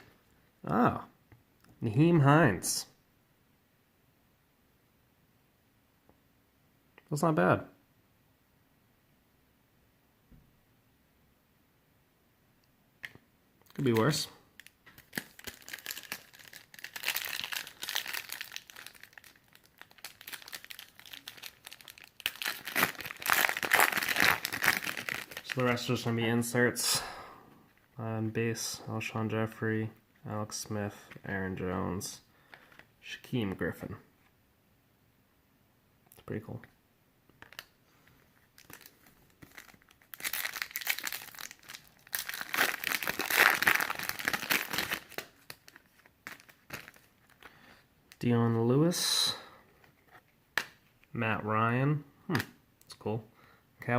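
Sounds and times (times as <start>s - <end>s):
plastic wrapper crinkling: 13.0s - 26.1s, 37.3s - 48.2s.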